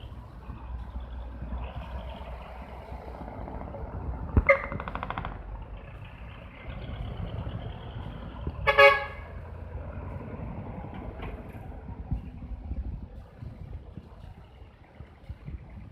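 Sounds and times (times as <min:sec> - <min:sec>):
truck engines rumbling: 0:00.0 - 0:15.9
truck horn: 0:04.4 - 0:04.8, 0:08.6 - 0:09.5.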